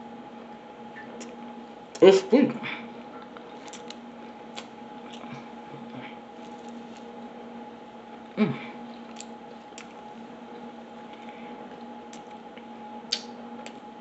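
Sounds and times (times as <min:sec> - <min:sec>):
steady hum: 0:00.0 - 0:14.0
person chewing food: 0:03.1 - 0:07.2, 0:08.2 - 0:13.8
wet mouth clicks: 0:13.1 - 0:13.8.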